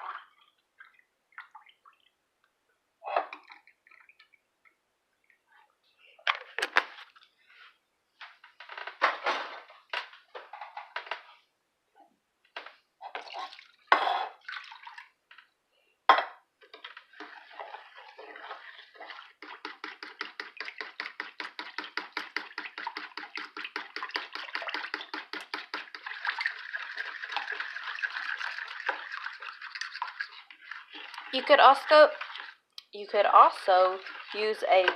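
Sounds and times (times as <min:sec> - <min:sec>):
liquid pouring into a bowl: 0:16.6 - 0:32.6, 0:33.8 - 0:34.9.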